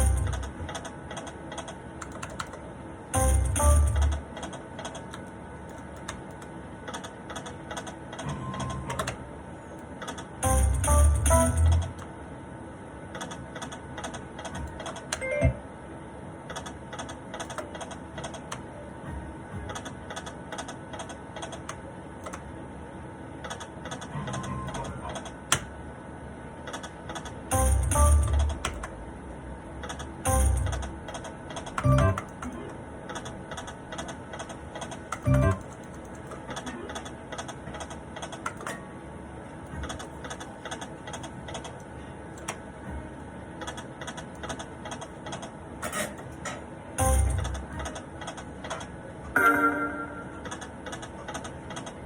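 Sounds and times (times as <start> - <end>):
poker machine clicking: 0.0 - 2.6, 16.5 - 18.7, 29.8 - 38.9, 43.6 - 52.0
clicking and tapping at slot machine: 0.0 - 9.2, 9.8 - 12.1, 13.1 - 15.6, 16.4 - 22.5, 23.4 - 25.7, 26.6 - 29.0, 29.8 - 38.9, 39.5 - 52.0
faint steady machine tones: 0.0 - 52.0
steady background hum: 0.0 - 52.0.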